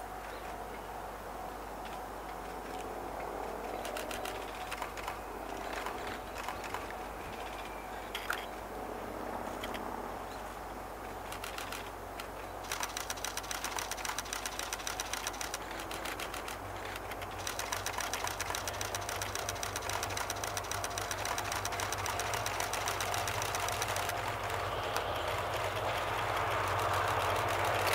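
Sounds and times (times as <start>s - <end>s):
diesel locomotive hum: 0.0s - 27.9s
rapid ticking chatter: 3.2s - 8.5s, 11.3s - 27.9s.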